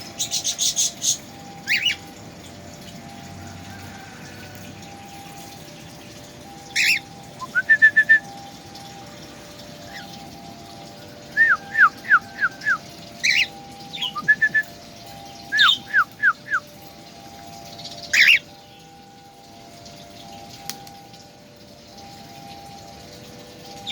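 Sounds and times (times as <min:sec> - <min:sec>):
songbird whistling: 0:06.6 - 0:08.4, 0:11.3 - 0:14.7, 0:15.4 - 0:16.7, 0:17.8 - 0:18.5
sharp bird calls: 0:06.8 - 0:08.0.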